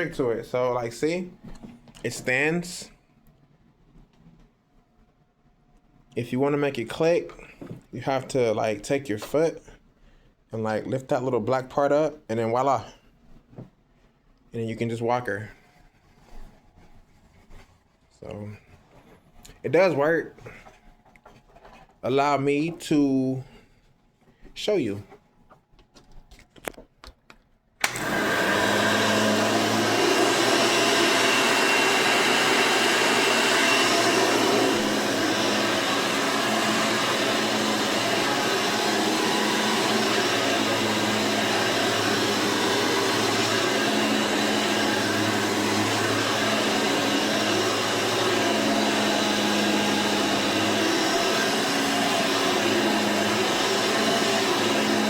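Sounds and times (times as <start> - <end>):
vacuum cleaner running: 0.0 - 2.9, 27.8 - 55.0.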